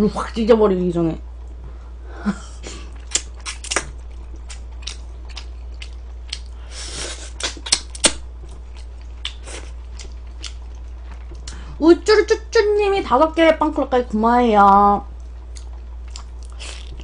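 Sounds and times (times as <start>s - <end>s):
steady low hum: 0.0s - 17.0s
biting and chewing food: 2.8s - 6.7s, 7.3s - 11.6s.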